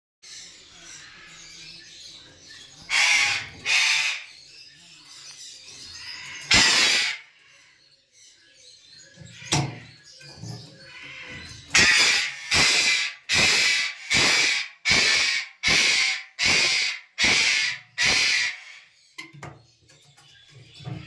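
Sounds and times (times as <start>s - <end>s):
parrot squawking: 2.9s - 4.3s, 6.2s - 7.4s, 10.8s - 18.9s.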